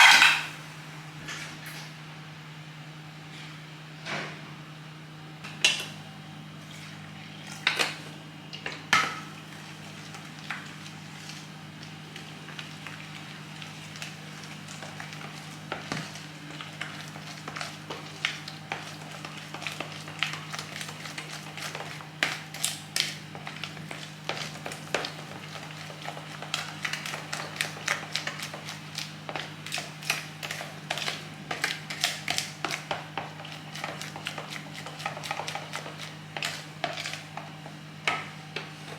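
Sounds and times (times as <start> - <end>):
utensils clinking against dishes: 0.0 - 0.6.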